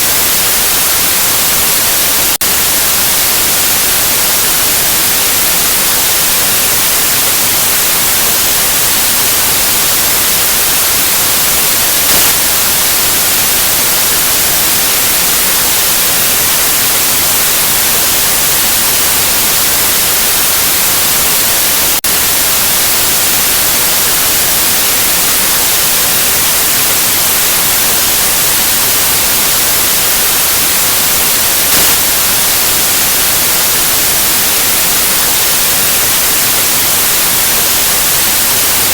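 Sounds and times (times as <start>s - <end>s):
loud white noise hiss: 0.0s - 38.9s.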